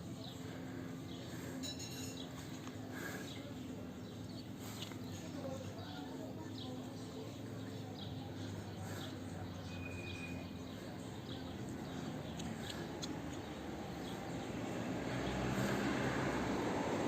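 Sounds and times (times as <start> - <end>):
broad rush of noise: 0.0 - 17.0
faint short high chirps: 9.7 - 10.5.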